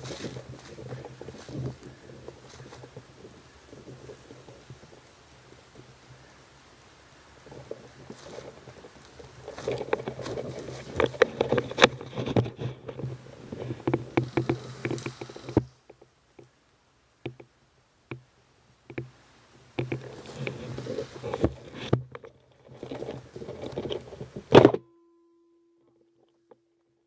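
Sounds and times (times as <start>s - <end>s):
low steady hum: 0.0s - 27.0s
clicks and knocks handling rifle: 7.5s - 16.5s, 19.8s - 24.8s.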